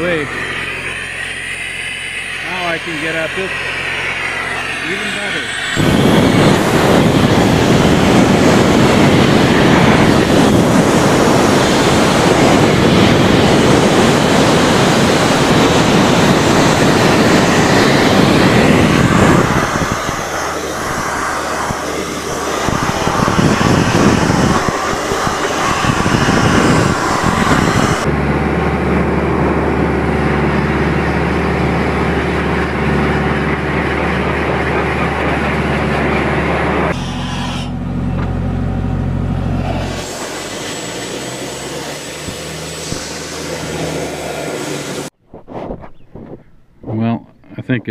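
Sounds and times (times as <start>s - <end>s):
compressed air hose blasting: 0.0s - 28.1s, 36.9s - 37.8s, 39.5s - 45.1s
diesel compressor engine droning: 0.0s - 45.2s.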